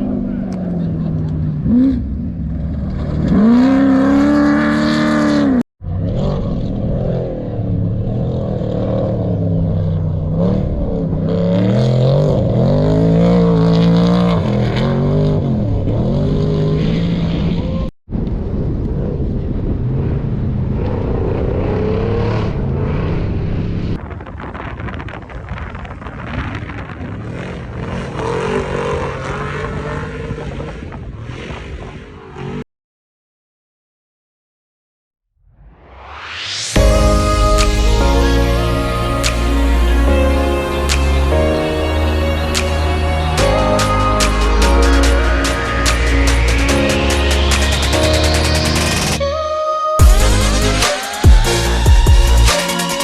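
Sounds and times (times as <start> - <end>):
race vehicle engines revving: 0.0 - 17.9, 18.7 - 24.0, 25.8 - 32.6, 36.8 - 49.2, 50.0 - 53.0.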